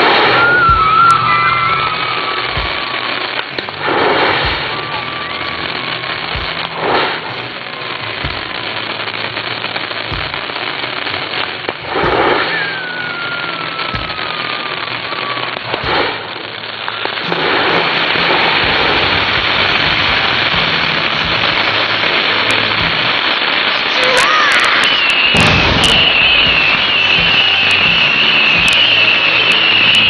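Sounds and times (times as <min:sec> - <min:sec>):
firework whistles: 0:00.0 - 0:30.0
fireworks crackling: 0:00.0 - 0:30.0
deep firework thump: 0:02.5 - 0:02.9, 0:03.6 - 0:04.9, 0:08.2 - 0:08.6, 0:10.1 - 0:10.7, 0:11.8 - 0:12.6, 0:17.2 - 0:23.3, 0:25.3 - 0:30.0.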